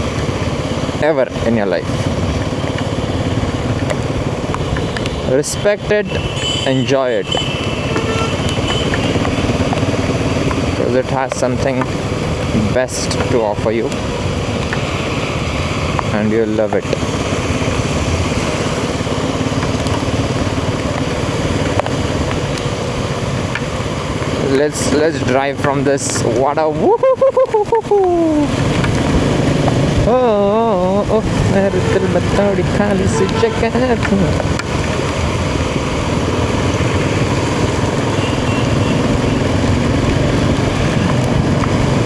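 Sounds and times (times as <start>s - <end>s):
rain noise: 0.0s - 42.0s
wind: 0.0s - 42.0s
motorcycle engine running: 28.2s - 42.0s.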